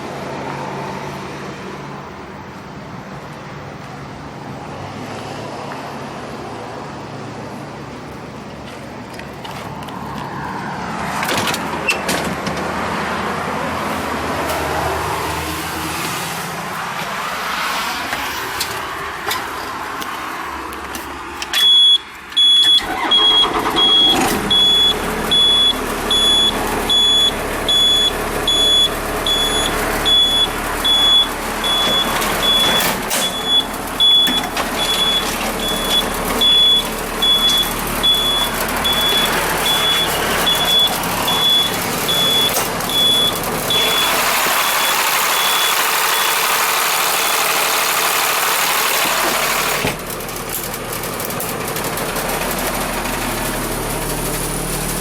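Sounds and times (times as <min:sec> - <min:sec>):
bus running noise: 0:00.0 - 0:55.0
electronic warning beeper: 0:21.6 - 0:46.4.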